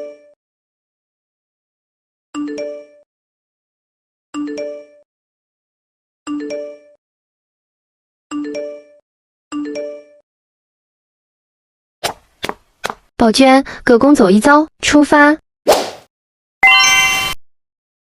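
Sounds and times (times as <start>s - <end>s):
ringing chime: 16.6s - 17.4s.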